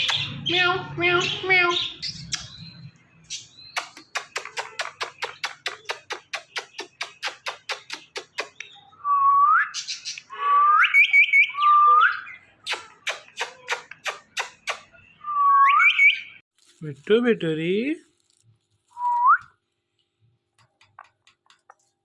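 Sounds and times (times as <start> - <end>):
parrot clicking: 3.8 - 8.6
parrot whistling and warbling: 3.8 - 16.4.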